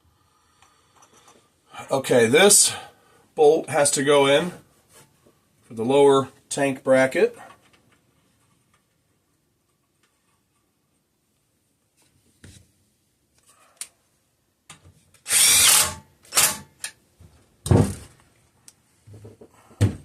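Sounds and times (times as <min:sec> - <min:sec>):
power drill driving bolt: 0:15.2 - 0:16.9.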